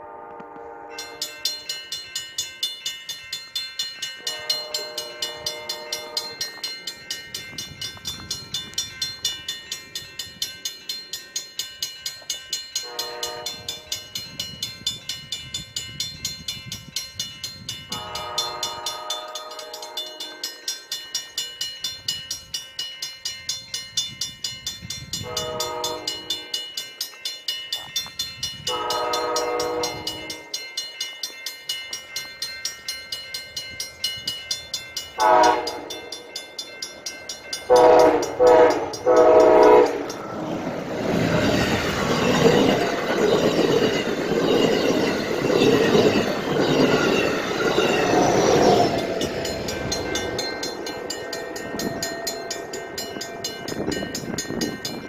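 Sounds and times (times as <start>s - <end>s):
train horn blasts: 0.0s - 1.7s, 4.2s - 6.5s, 12.8s - 14.1s, 17.9s - 20.6s, 25.2s - 26.6s, 28.7s - 30.5s, 35.2s - 36.0s, 37.7s - 40.2s
crossing bell ringing: 0.0s - 55.0s
train rushing past: 32.9s - 55.0s.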